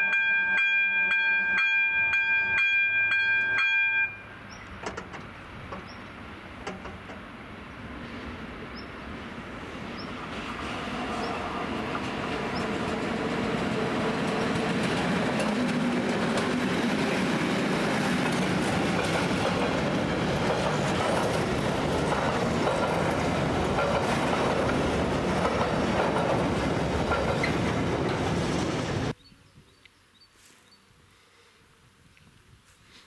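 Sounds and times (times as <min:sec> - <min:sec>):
diesel locomotive engine: 0:01.4 - 0:29.2
wagons rolling on rails: 0:10.4 - 0:29.1.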